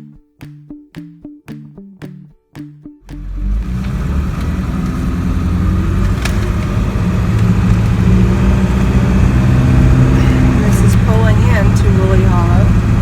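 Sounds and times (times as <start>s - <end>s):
road noise: 3.1s - 13.0s
vehicle engine running: 3.2s - 13.0s.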